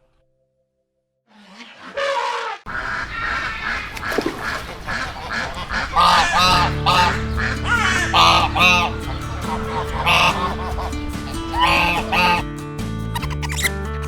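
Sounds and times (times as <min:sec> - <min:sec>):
waterfowl nasal calls: 0:01.4 - 0:12.4
waterfowl honking: 0:02.7 - 0:12.4
background music with held notes: 0:03.0 - 0:14.0.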